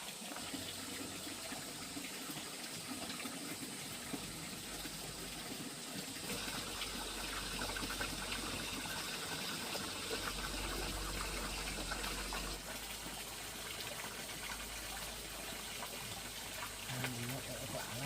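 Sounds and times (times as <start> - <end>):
water running and splashing: 0.0 - 18.0.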